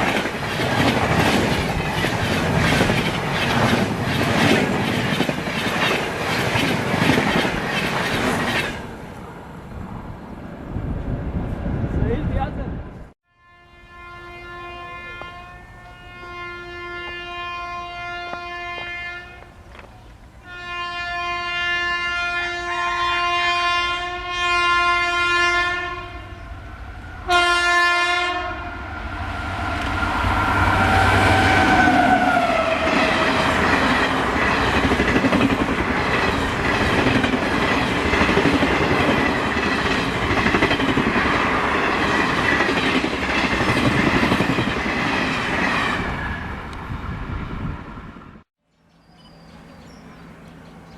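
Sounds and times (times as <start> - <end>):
train wheels clattering: 0.0 - 8.9
locomotive horn blasts: 13.2 - 19.5, 20.4 - 26.4, 27.2 - 28.9.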